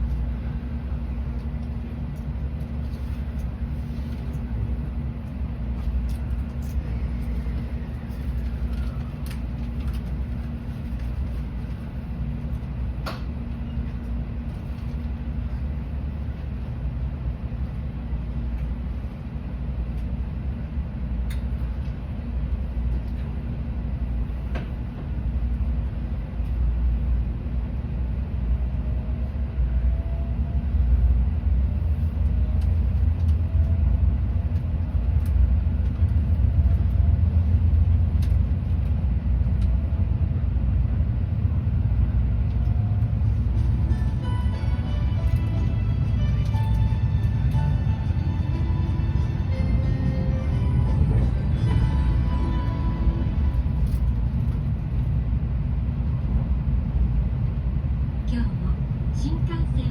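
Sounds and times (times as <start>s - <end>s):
train cabin rumble and hum: 0.0s - 59.9s.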